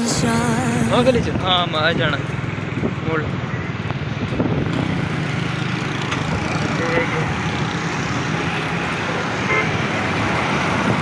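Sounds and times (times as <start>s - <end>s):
motorcycle engine: 0.9s - 11.0s
wind noise: 3.8s - 5.2s, 9.9s - 11.0s.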